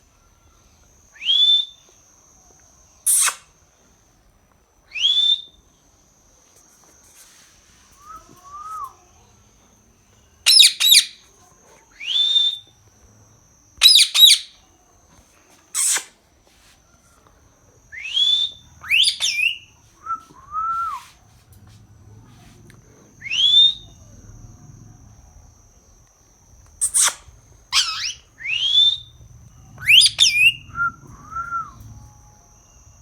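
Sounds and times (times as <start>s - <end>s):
parrot whistles and squawks: 3.0s - 3.5s, 10.5s - 11.2s, 13.8s - 14.5s, 15.7s - 16.2s, 18.0s - 21.1s, 23.2s - 23.9s, 26.8s - 29.2s, 29.8s - 31.8s
faint steady high tone: 5.4s - 10.5s, 16.8s - 33.0s.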